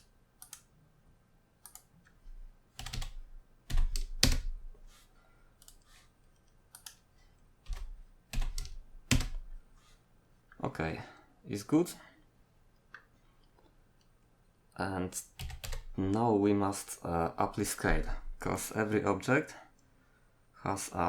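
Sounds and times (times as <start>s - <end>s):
computer keyboard keystrokes: 1.6s - 1.9s, 2.8s - 4.6s, 6.7s - 7.0s, 7.7s - 9.4s, 15.4s - 16.0s.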